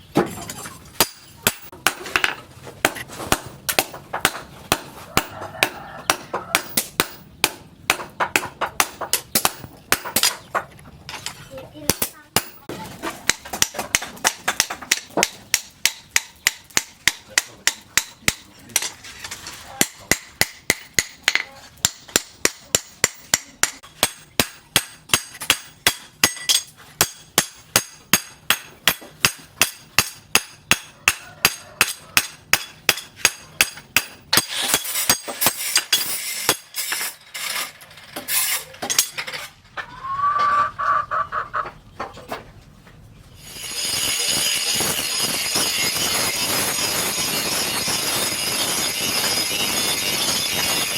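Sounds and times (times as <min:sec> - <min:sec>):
hammer striking metal on anvil: 0:01.0 - 0:10.4, 0:11.8 - 0:19.0, 0:19.8 - 0:37.2
chicken clucking: 0:05.0 - 0:06.6, 0:39.7 - 0:43.4.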